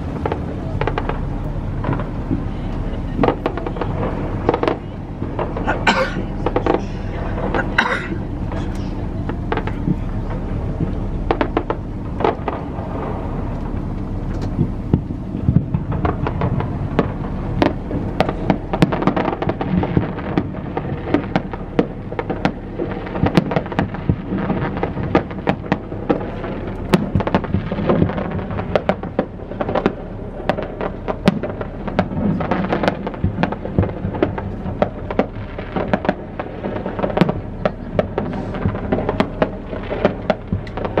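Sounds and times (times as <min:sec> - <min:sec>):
fireworks bangs and crackle: 0:00.0 - 0:41.0.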